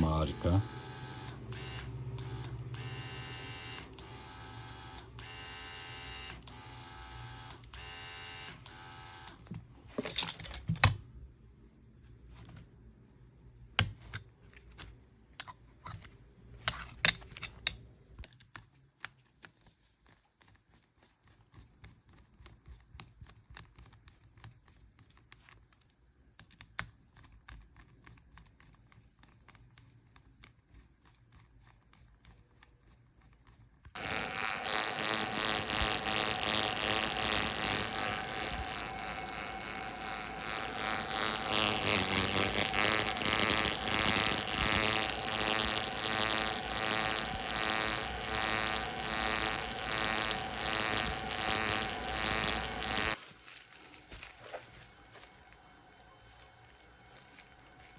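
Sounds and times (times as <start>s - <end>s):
loud steady buzz: 0.0s - 9.4s, 34.0s - 53.2s
small clicks and taps: 23.0s - 30.6s.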